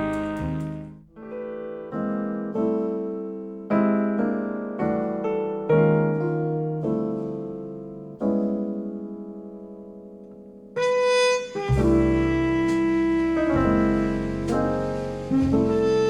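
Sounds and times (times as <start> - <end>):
music with bass and held notes: 0.0 - 1.8, 10.8 - 16.0
piano chord ringing: 7.2 - 16.0.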